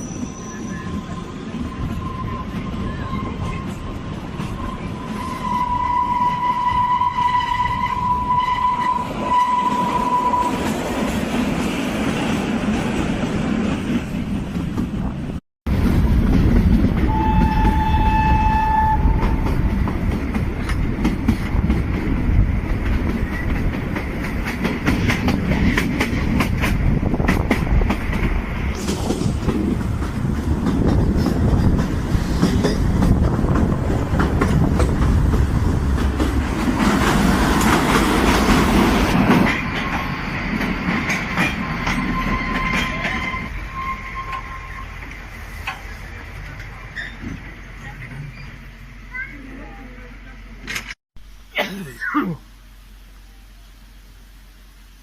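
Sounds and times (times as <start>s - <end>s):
train horn: 4.6s - 10.7s, 17.1s - 19.6s
train wheels clattering: 15.8s - 48.6s.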